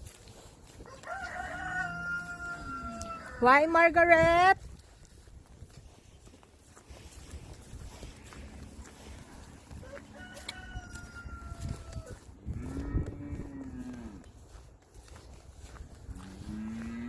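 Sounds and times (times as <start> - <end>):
cow mooing: 12.5 - 14.3, 16.2 - 17.0.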